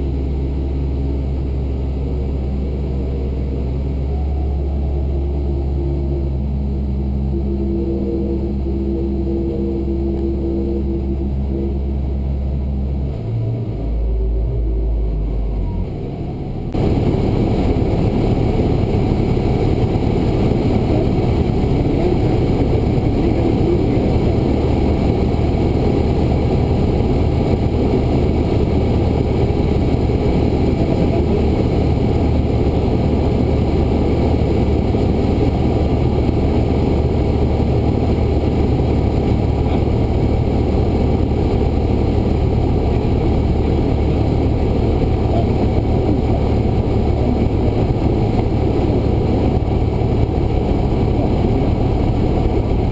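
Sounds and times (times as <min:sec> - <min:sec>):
airplane engine and propeller running: 0:00.0 - 0:52.9
rushing air noise: 0:00.0 - 0:52.9.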